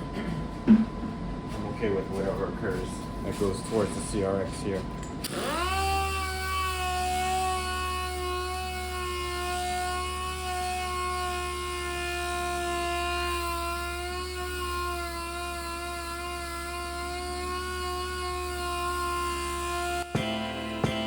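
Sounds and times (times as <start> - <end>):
electric sander whining: 5.2 - 21.0.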